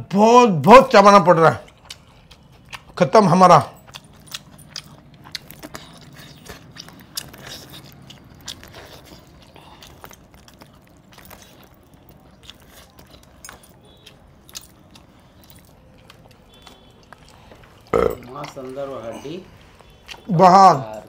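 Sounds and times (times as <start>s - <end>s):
man chewing meat: 1.4s - 21.0s
mouth clicks and smacks: 3.8s - 18.6s.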